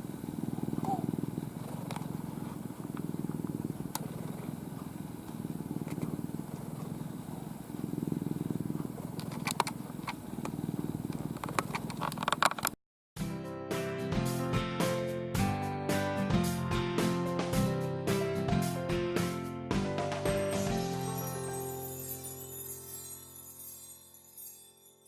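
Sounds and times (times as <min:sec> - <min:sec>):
cat purring: 0:00.0 - 0:12.1
clicks and rustles: 0:08.8 - 0:12.8
music: 0:13.2 - 0:25.0.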